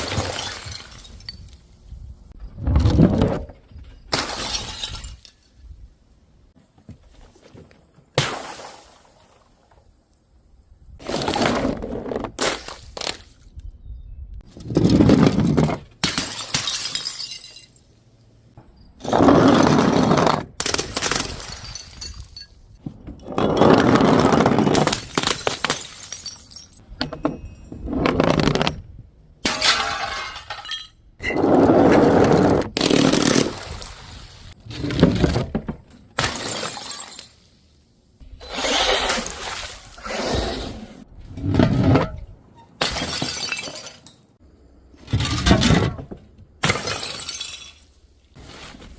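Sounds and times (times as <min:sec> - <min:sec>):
glass bottles shattering: 0:00.0 - 0:01.6, 0:04.1 - 0:05.6, 0:16.0 - 0:17.9, 0:20.8 - 0:22.8, 0:24.8 - 0:27.6, 0:29.4 - 0:31.4, 0:36.2 - 0:37.5, 0:42.8 - 0:44.2, 0:46.6 - 0:48.0.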